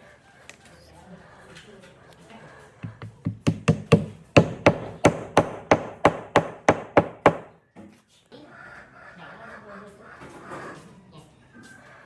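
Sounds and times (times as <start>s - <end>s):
hammer blows on wood: 2.8s - 7.5s.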